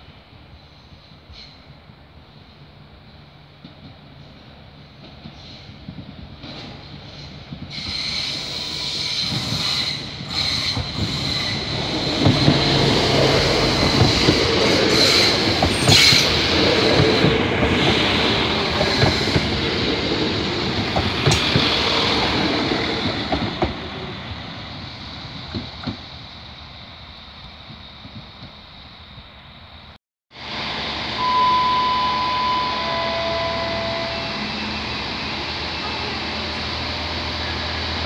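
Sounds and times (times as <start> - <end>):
diesel train passing: 0.0 - 38.0
high steady whine: 30.4 - 34.5.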